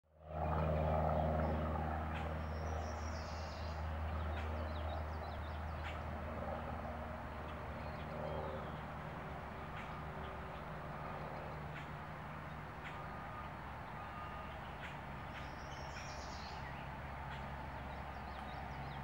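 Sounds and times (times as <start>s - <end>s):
steady low hum: 0.1s - 19.0s
songbirds chirping: 0.6s - 19.0s.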